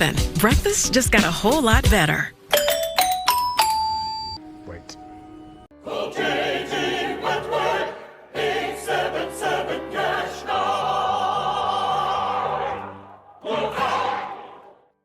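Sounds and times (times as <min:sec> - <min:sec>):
choir singing with vibrato: 0:05.6 - 0:15.0.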